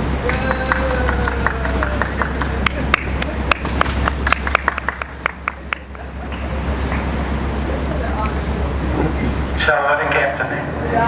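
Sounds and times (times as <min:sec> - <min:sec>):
people clapping: 0:00.0 - 0:07.3
boat engine drone: 0:00.0 - 0:11.0.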